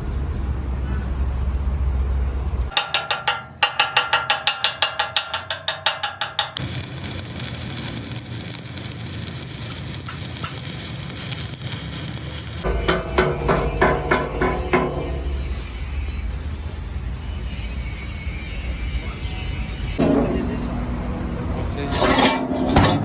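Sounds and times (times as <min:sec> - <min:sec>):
hammer striking metal: 0:02.7 - 0:15.5
steady hissing noise: 0:06.6 - 0:12.8
low machine hum: 0:06.6 - 0:15.5.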